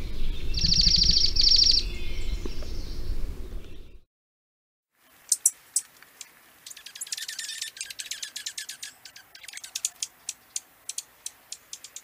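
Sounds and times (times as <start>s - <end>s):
bird chip calls: 0.4s - 2.8s, 5.3s - 12.0s.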